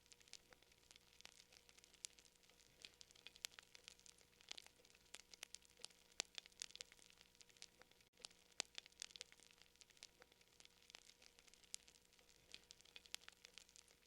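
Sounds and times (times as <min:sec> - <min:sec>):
faint steady hiss: 0:00.0 - 0:14.0
fire crackling: 0:00.0 - 0:14.0.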